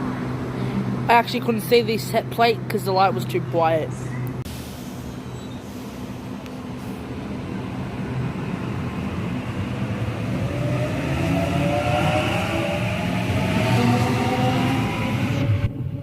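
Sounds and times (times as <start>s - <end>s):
electric train rumbling: 0.0s - 16.0s
traction motor whine rising: 3.9s - 16.0s.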